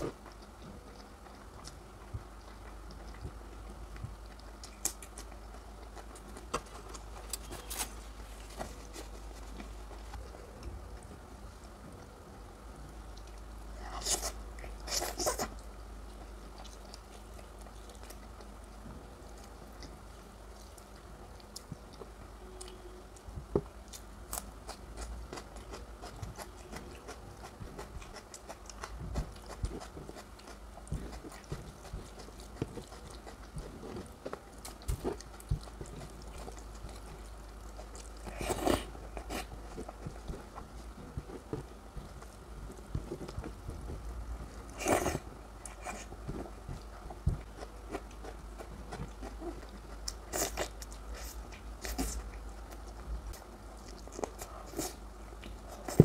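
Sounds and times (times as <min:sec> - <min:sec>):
wet chewing and mouth sounds: 0:00.0 - 0:12.2, 0:12.9 - 0:56.0.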